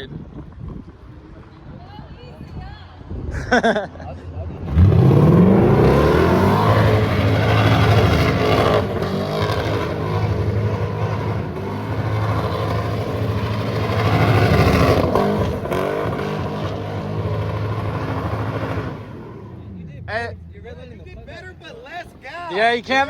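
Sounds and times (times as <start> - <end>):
car engine revving hard: 4.6 - 19.6
tyres spinning and sliding: 4.6 - 19.7.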